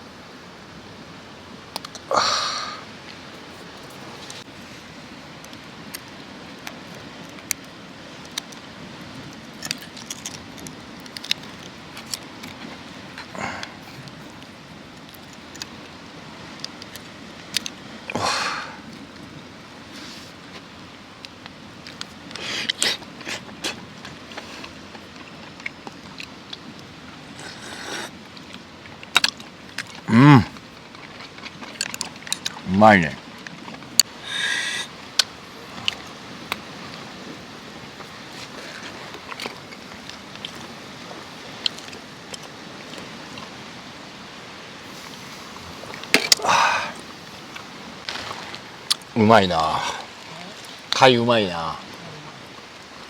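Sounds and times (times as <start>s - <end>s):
person humming: 30.1s - 30.6s
steady hiss: 34.0s - 39.0s, 43.5s - 53.0s.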